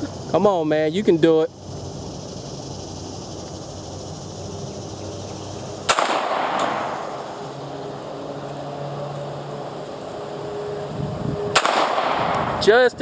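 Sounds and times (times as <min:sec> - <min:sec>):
pistol shot with echo: 0:05.9 - 0:07.0, 0:11.5 - 0:12.4.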